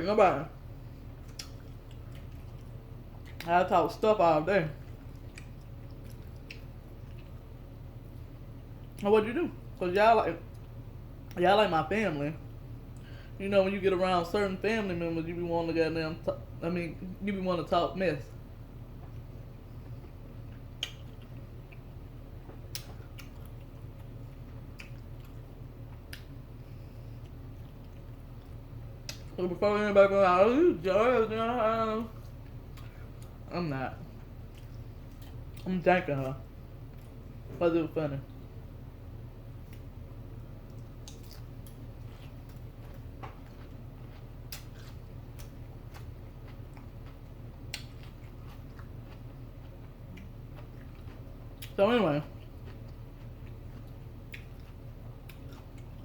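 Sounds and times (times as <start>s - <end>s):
steady low hum: 0.0s - 56.0s
chewing: 1.2s - 3.5s, 4.8s - 9.0s, 19.0s - 29.4s, 32.1s - 35.7s, 40.6s - 56.0s.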